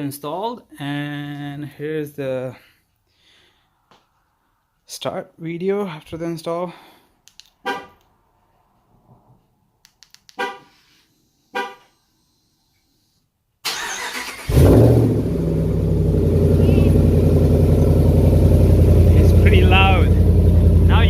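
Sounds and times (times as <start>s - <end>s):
loud car engine idling: 14.5s - 21.0s.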